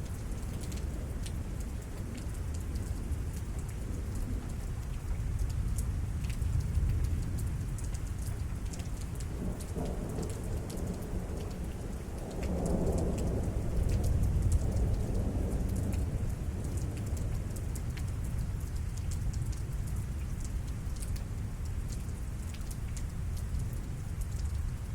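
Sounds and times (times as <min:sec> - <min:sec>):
rain falling: 0:00.0 - 0:24.9
raindrops ticking on surfaces: 0:00.0 - 0:24.9
rolling thunder rumble: 0:09.3 - 0:17.8.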